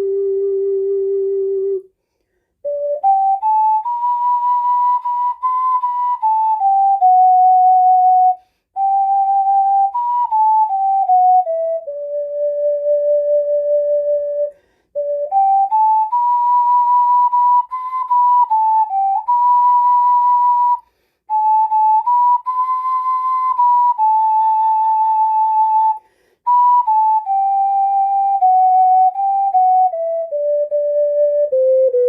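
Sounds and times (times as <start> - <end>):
ocarina playing slow melody: 0.0 - 1.9, 2.6 - 32.0.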